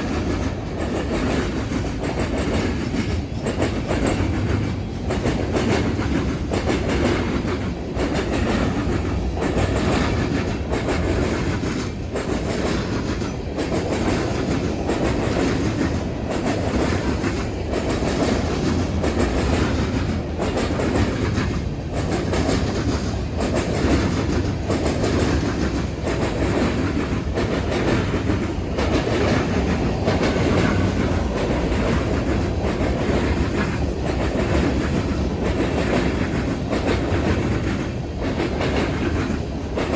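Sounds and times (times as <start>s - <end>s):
freight train wheels clattering: 0.0s - 39.9s.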